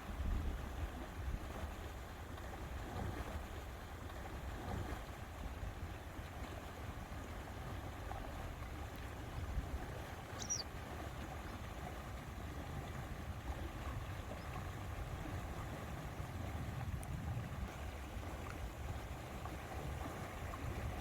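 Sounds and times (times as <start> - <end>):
water lapping at shore: 0.0 - 21.0
wind rumble: 13.4 - 21.0.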